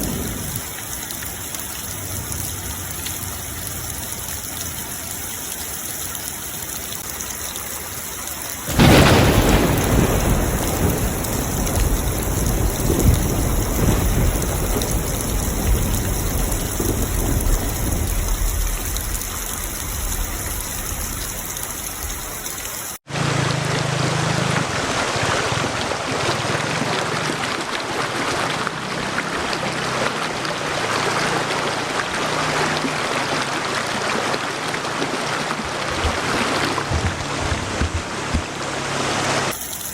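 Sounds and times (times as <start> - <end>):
thunder rumbling: 0.0 - 1.0, 8.7 - 22.3
heavy rain: 0.0 - 39.9.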